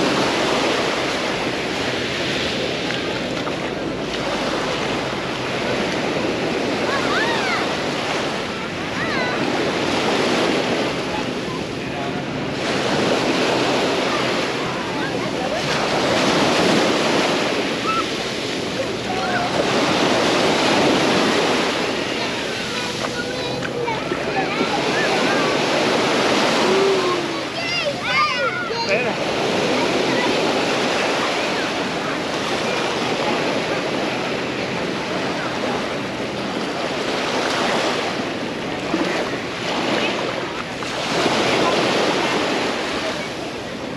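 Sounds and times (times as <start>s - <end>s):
faint distant voices: 0.0s - 43.9s
surf washing on beach: 0.0s - 43.9s.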